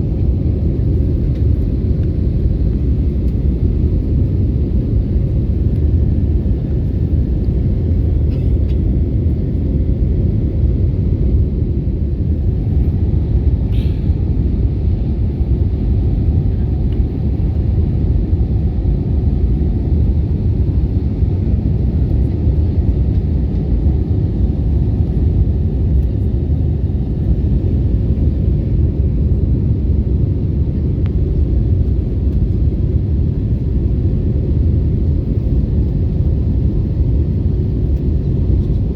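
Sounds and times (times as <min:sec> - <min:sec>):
airliner engines rumbling: 0:00.0 - 0:38.9.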